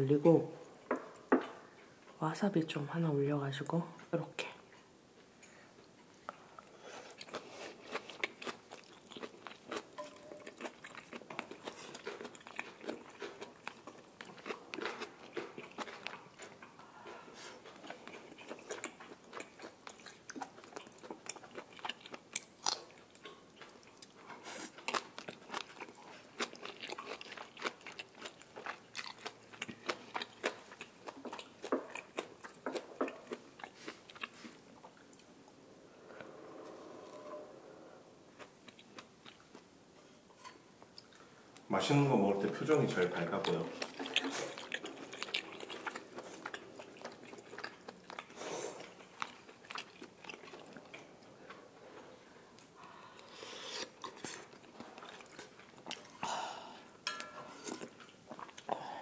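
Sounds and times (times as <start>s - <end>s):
person chewing wetly: 5.8s - 35.6s, 38.3s - 39.7s, 42.7s - 56.2s, 56.8s - 58.9s.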